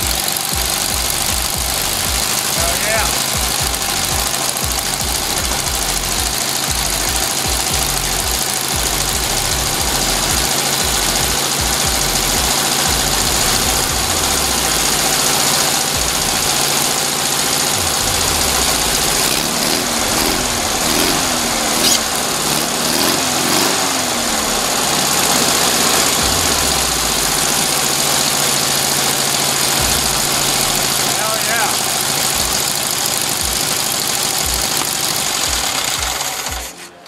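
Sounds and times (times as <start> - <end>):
air-cooled engine running: 0.0 - 37.0.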